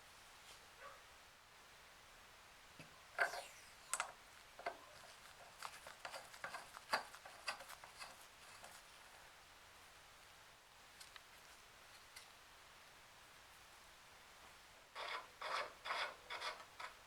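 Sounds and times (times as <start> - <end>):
brief scrape: 3.2 - 3.9.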